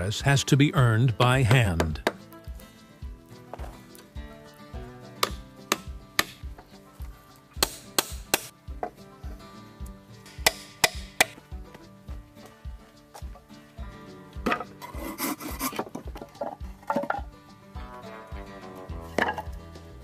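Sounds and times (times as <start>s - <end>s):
background music with steady beat: 0.0s - 20.0s
hand tool knocking on wood: 1.4s - 2.3s, 5.2s - 6.7s, 10.3s - 11.4s.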